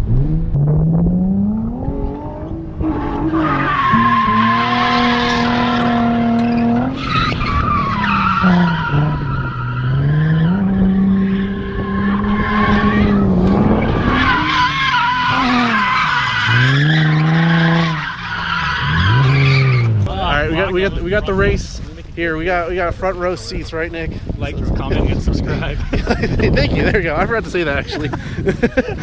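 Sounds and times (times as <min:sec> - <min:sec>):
car engine revving: 0:00.0 - 0:20.2
tyres squealing: 0:13.9 - 0:20.0.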